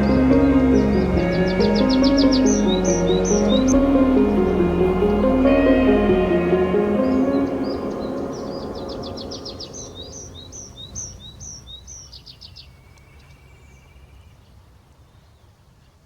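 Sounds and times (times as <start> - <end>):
soft background music: 0.0 - 10.7.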